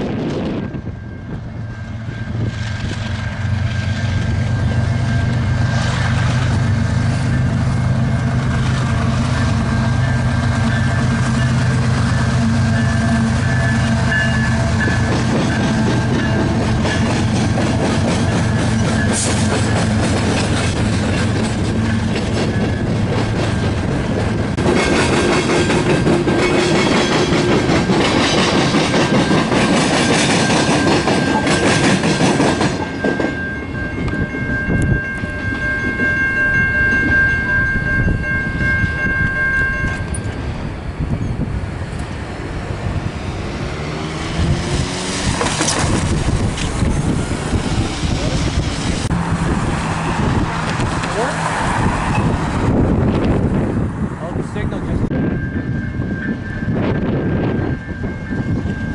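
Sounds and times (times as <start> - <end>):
diesel locomotive engine running: 0.0 - 58.9
freight cars rumbling and clattering: 0.0 - 58.9
high-pitched ringing tone: 0.2 - 8.3, 9.1 - 17.1, 32.7 - 41.4, 55.1 - 58.9.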